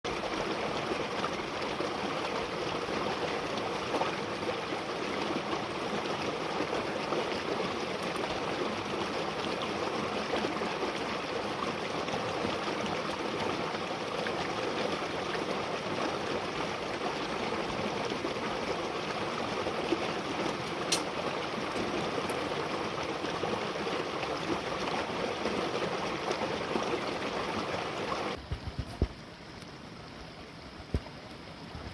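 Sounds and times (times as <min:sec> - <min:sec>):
flowing stream: 0:00.1 - 0:31.9.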